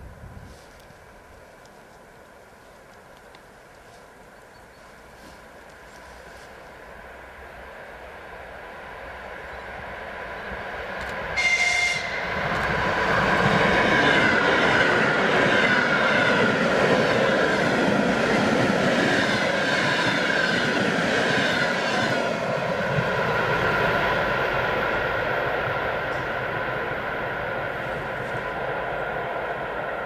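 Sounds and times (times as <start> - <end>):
train rail and wheel noise: 0.0 - 30.0
train horn blast: 11.3 - 12.3.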